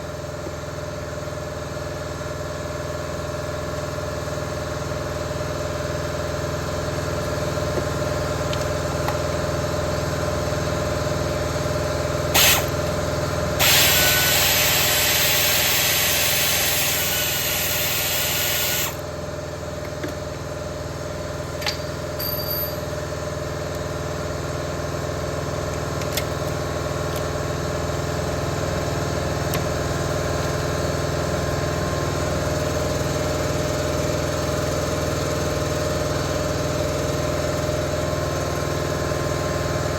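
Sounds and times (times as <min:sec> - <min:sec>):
machinery humming: 0:12.3 - 0:19.1
loud spray-like hiss: 0:12.4 - 0:12.7, 0:13.6 - 0:19.0.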